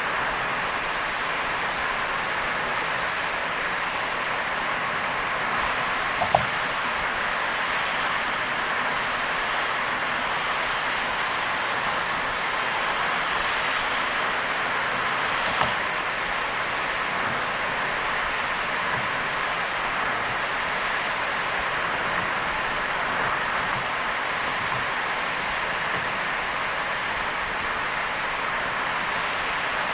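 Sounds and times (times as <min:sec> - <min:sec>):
brief knocks: 0:06.2 - 0:06.6.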